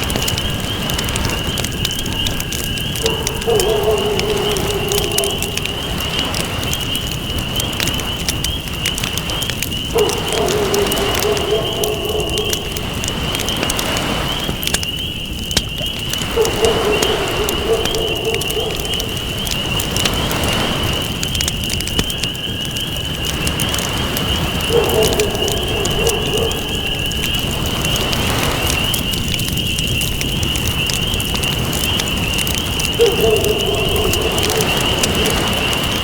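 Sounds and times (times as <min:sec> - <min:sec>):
campfire crackling and popping: 0:00.0 - 0:36.0.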